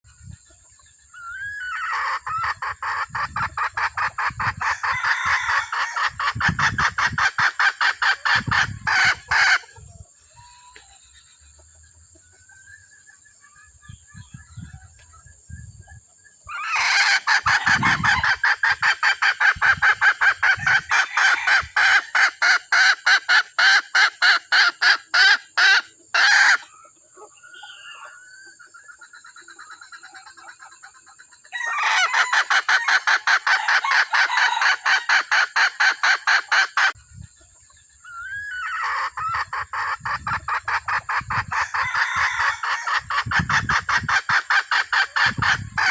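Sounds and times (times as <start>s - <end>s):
quiet hen calls: 0.5s - 11.7s, 16.4s - 37.0s, 38.0s - 45.9s
hen clucking rapidly: 1.3s - 10.0s, 16.5s - 26.7s, 28.8s - 37.0s, 38.2s - 45.9s.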